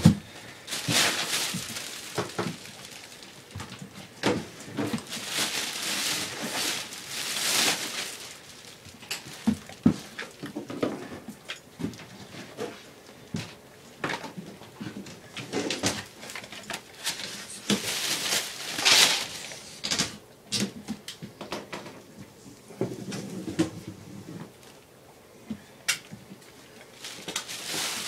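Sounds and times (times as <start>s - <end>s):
linoleum flooring torn up: 0.0s - 10.4s.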